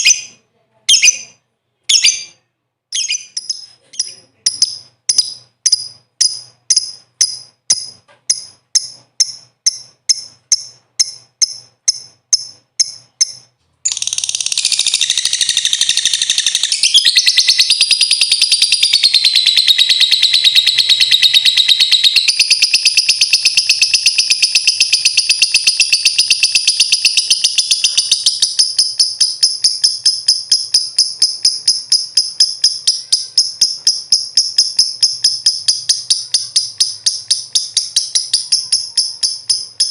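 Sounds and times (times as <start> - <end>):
lovebird chirping and trilling: 0.0 - 39.9.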